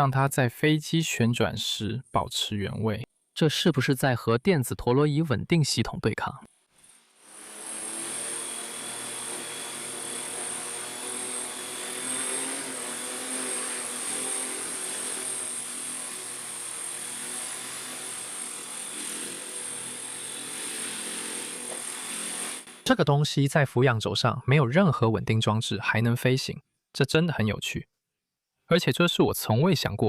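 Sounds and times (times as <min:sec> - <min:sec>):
electric rotors whirring: 0:07.2 - 0:22.8.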